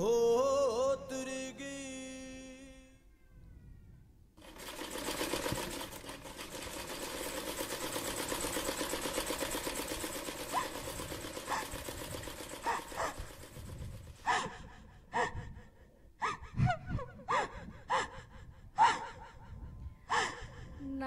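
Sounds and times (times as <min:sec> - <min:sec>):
sewing machine clattering: 0:04.4 - 0:14.2.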